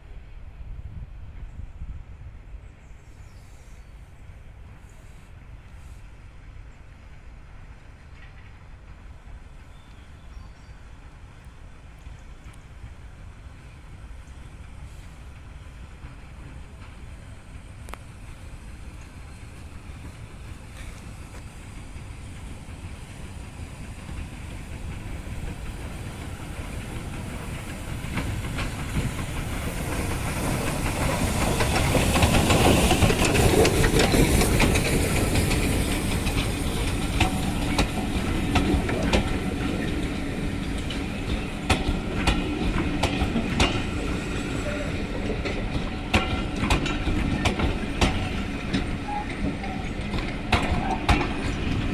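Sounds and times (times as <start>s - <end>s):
train running on rails: 0.0s - 51.9s
wheels clicking over rail joints: 14.3s - 51.9s.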